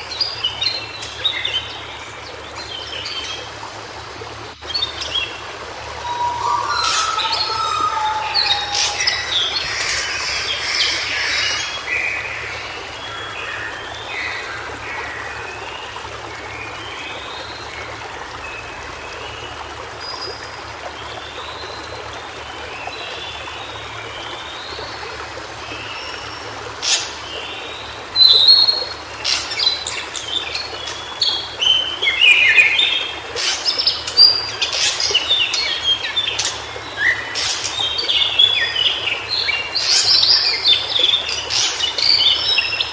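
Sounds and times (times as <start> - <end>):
bird singing short phrases: 6.0 - 11.5
other birds chirping: 6.0 - 12.7.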